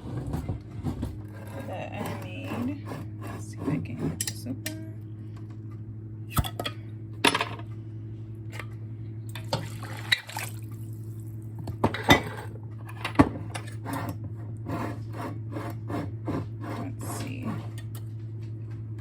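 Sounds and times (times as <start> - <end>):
steady low hum: 0.0 - 19.0
jar lid scraping: 1.2 - 4.4.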